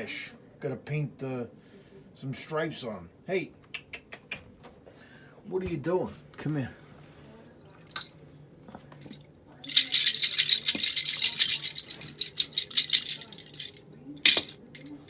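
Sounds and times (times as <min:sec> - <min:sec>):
toy rattling: 0:07.9 - 0:08.1, 0:09.0 - 0:15.0.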